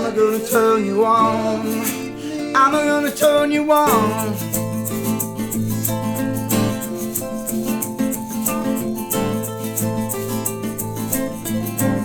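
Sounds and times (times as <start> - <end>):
acoustic guitar: 0.0 - 12.0
shaker ticking: 1.7 - 2.1, 3.0 - 12.0.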